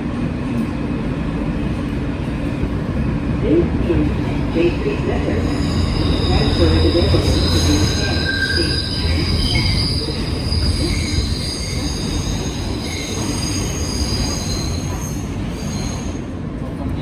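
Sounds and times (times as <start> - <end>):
train rumble: 0.0 - 17.0
train wheels squealing on rails: 5.0 - 16.4.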